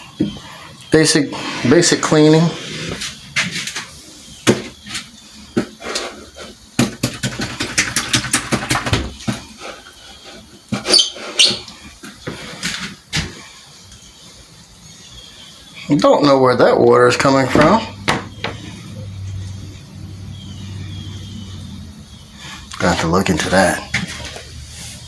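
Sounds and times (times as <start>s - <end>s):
objects knocking and rattling: 6.8s - 9.6s, 17.5s - 18.8s
short high squeaks: 10.8s - 11.6s.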